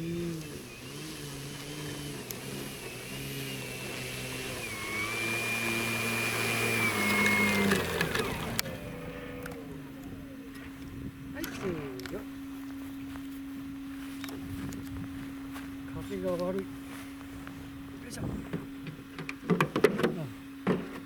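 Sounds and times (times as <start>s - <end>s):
model airplane motor whining: 0.0s - 12.7s.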